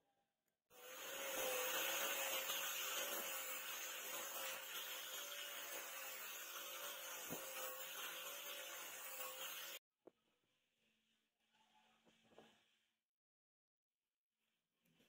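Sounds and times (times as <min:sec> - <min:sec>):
power tool motor whirring: 0:00.8 - 0:09.8.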